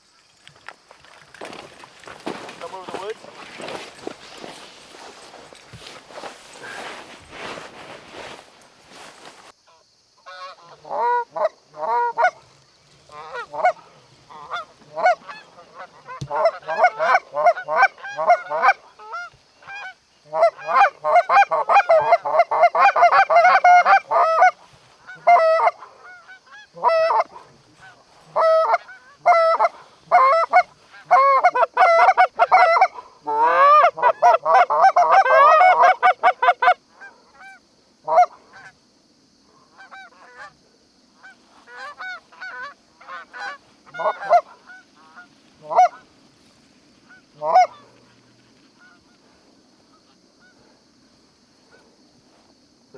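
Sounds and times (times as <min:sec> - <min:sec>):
goose honking and clucking: 0:10.3 - 0:12.4, 0:13.1 - 0:38.7, 0:41.2 - 0:46.1, 0:47.1 - 0:48.1.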